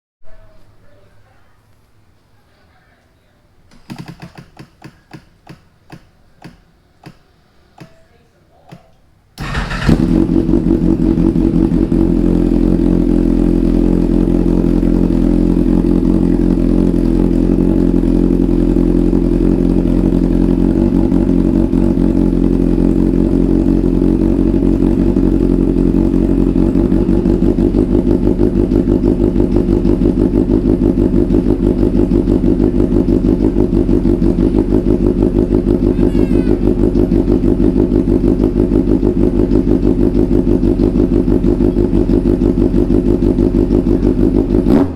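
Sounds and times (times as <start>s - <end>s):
motorcycle engine idling: 9.4s - 44.9s.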